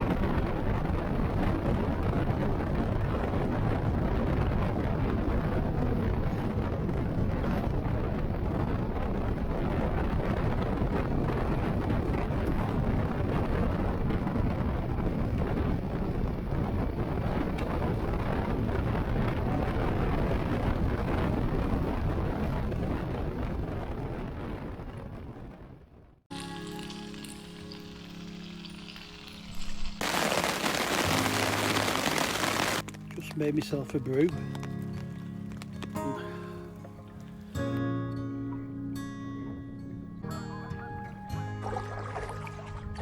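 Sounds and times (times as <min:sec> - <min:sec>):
wind on microphone: 0:00.0 - 0:26.4, 0:29.4 - 0:32.9.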